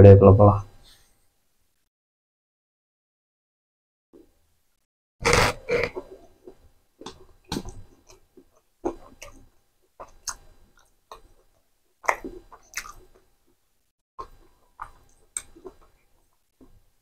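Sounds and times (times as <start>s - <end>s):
chewing with mouth clicks: 5.8s - 13.6s, 14.2s - 16.4s.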